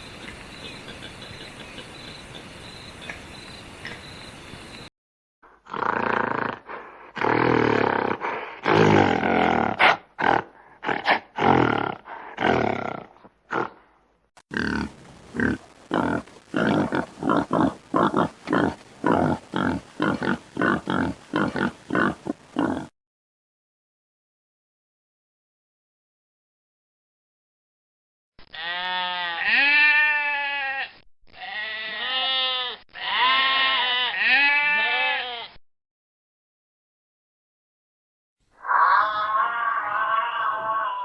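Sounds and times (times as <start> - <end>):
animal rhythmic grunts: 14.6 - 22.9
animal harsh calls: 38.6 - 41.0.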